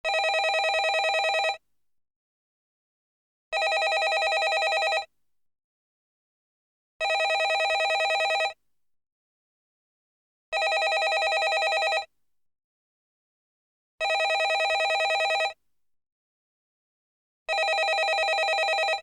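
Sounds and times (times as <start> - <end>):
telephone ringing: 0.1 - 1.6, 3.6 - 5.1, 7.0 - 8.6, 10.6 - 12.1, 14.0 - 15.6, 17.5 - 19.0.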